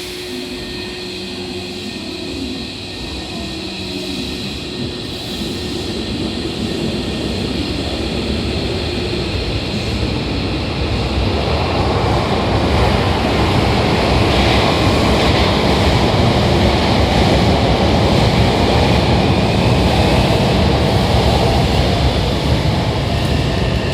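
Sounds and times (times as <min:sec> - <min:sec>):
electric train pulling out: 0:00.0 - 0:23.9.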